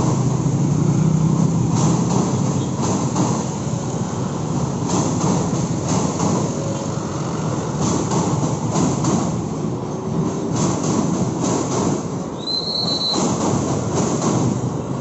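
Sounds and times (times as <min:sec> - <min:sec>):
train rumbling over bridge: 0:00.0 - 0:15.0.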